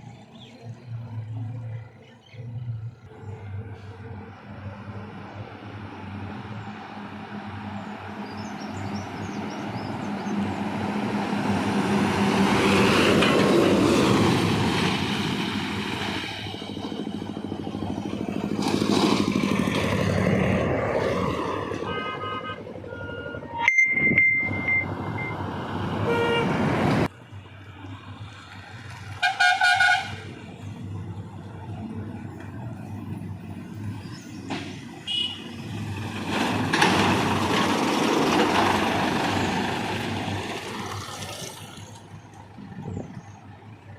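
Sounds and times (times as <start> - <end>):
heavy trucks passing at speed: 0.0 - 43.9
truck horn blasts: 21.8 - 24.8, 26.0 - 26.6, 29.2 - 30.4, 35.0 - 35.6.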